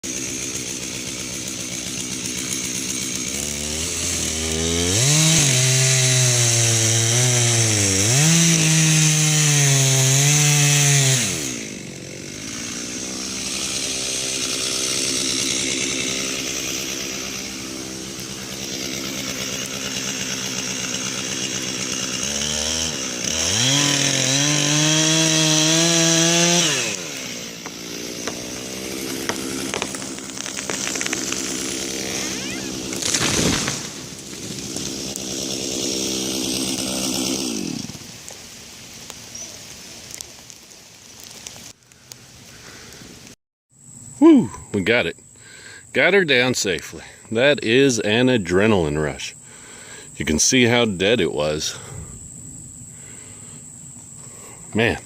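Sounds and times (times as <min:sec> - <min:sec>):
chainsaw cutting wood: 0:00.0 - 0:43.4.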